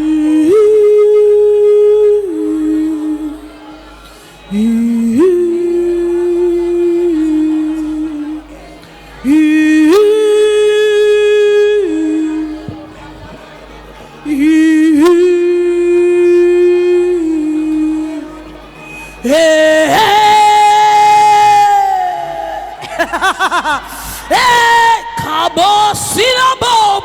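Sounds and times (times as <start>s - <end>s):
soft backing music: 0.0s - 27.0s
woman humming: 19.2s - 26.2s.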